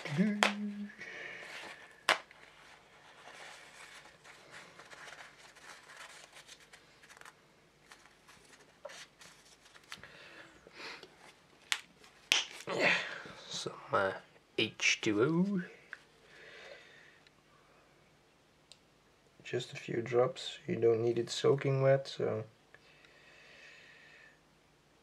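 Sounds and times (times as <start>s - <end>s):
toilet paper rustling: 1.3s - 10.1s.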